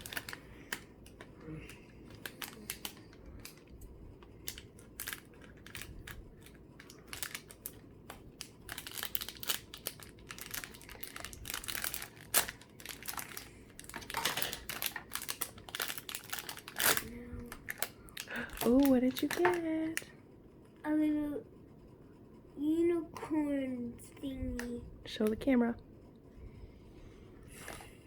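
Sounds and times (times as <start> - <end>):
packaging crinkling and tearing: 0.0 - 20.0.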